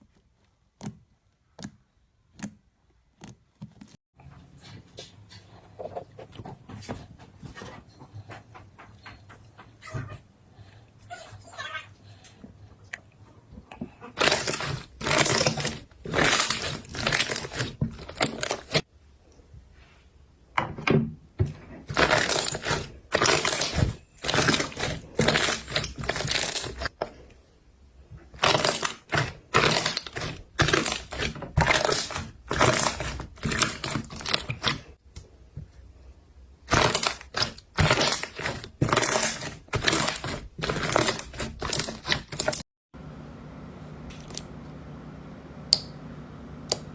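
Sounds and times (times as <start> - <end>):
slime crackling and popping: 28.4 - 34.8, 36.7 - 42.6.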